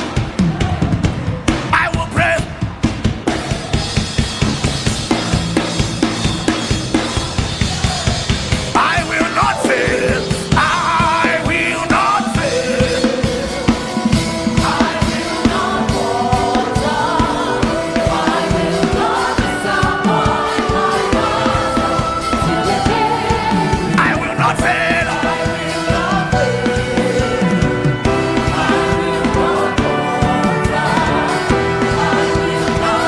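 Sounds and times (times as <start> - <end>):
drum kit beat: 0.0 - 33.0
voices singing: 7.6 - 33.0
sustained chords: 8.8 - 33.0.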